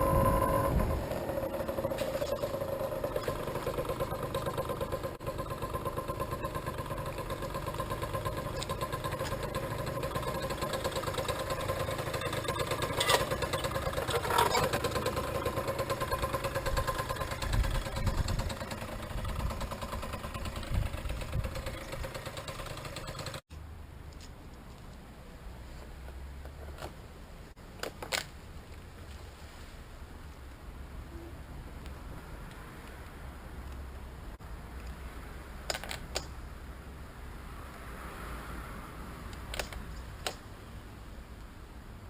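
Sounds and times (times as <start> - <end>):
engine knocks: 0.0 - 23.4
small engine idling: 0.0 - 23.4.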